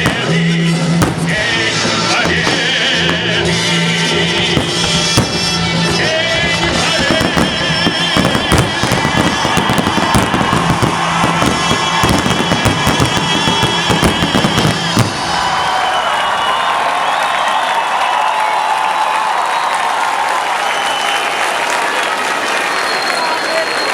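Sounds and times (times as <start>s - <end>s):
music: 0.0s - 15.1s
fireworks bangs and crackles: 0.0s - 16.5s.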